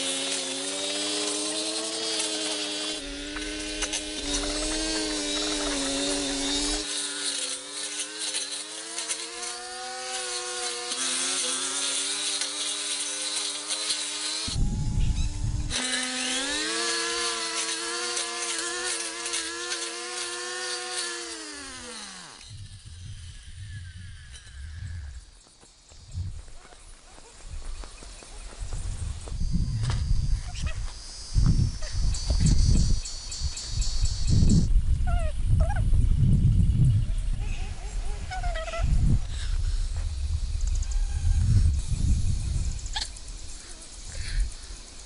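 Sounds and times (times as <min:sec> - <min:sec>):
small motor humming: 0:00.0 - 0:25.4.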